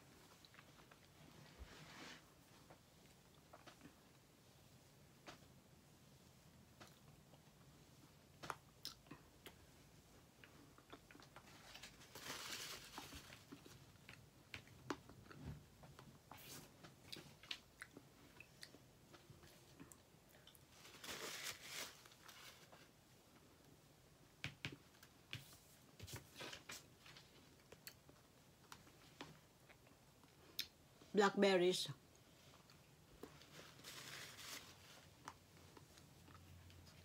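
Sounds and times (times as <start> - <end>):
person chewing food: 8.4 - 11.4, 13.4 - 20.7, 35.1 - 37.0.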